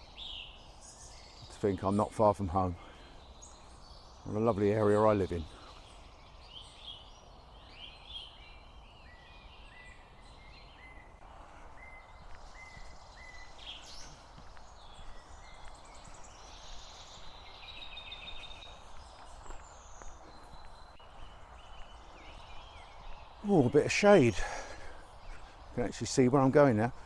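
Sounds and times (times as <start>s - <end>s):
small birds chirping and trilling: 0.0s - 27.0s
distant motorway traffic hum: 9.6s - 27.0s.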